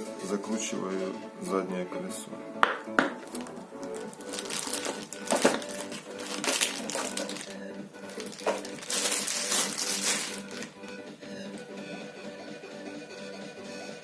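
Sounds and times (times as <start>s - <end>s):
quiet background music: 0.0s - 14.0s
tool case clattering and rustling: 4.6s - 9.6s.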